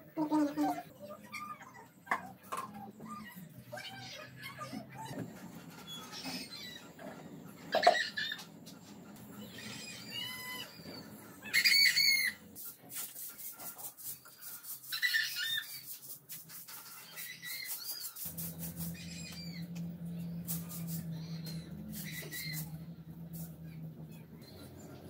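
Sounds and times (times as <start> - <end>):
small birds chirping: 0.3 - 12.6, 14.1 - 25.0
steady low hum: 1.8 - 12.6, 18.3 - 25.0.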